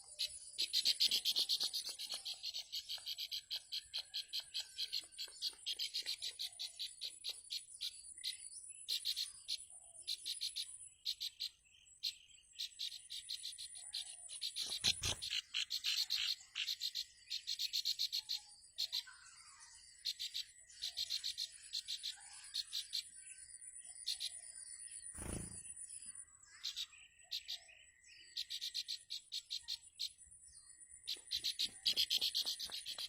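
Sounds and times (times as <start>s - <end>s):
bird chattering alarm calls: 0.0s - 8.0s, 8.9s - 19.1s, 31.1s - 33.0s.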